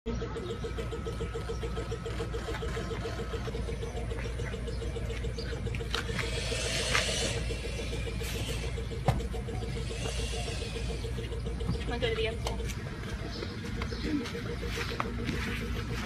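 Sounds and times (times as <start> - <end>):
vehicle engine idling: 0.1 - 16.0.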